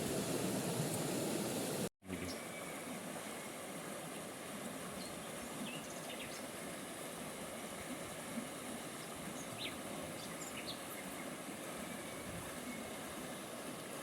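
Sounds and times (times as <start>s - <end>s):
wind hiss: 0.0s - 1.9s.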